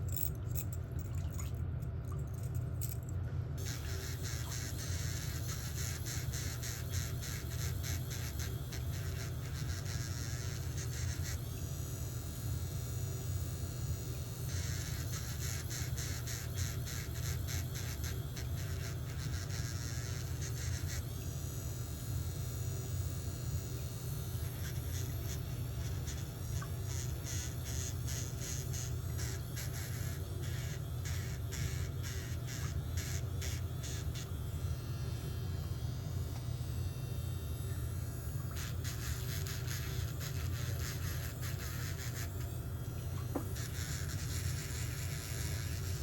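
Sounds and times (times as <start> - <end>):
drill bit grinding toenail: 3.6 - 12.1, 13.4 - 21.8, 23.7 - 34.4, 38.4 - 42.6, 43.3 - 46.0
electric nail drill humming: 3.6 - 46.0.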